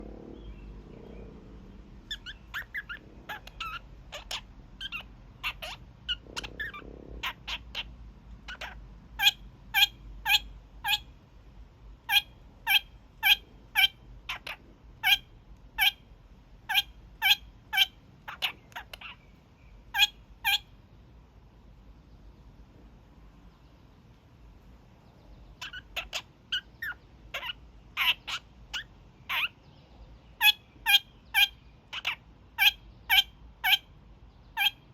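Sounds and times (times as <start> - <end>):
parakeet honking calls: 2.0 - 11.2, 12.0 - 19.2, 19.9 - 20.8, 25.6 - 29.6, 30.4 - 34.9.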